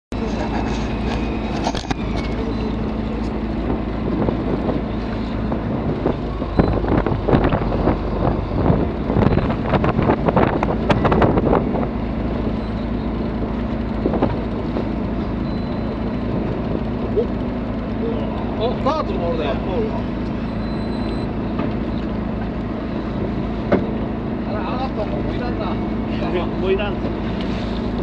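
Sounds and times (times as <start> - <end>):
boat engine running: 0.1 - 28.0
wind on microphone: 0.8 - 12.6, 13.3 - 15.0.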